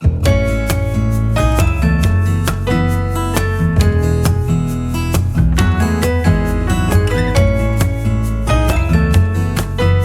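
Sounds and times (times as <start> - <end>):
strummed acoustic guitar music: 0.0 - 10.0.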